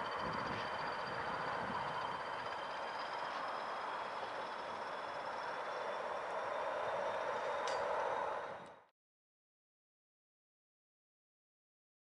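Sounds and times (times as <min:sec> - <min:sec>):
train rolling over rails: 0:00.0 - 0:08.9.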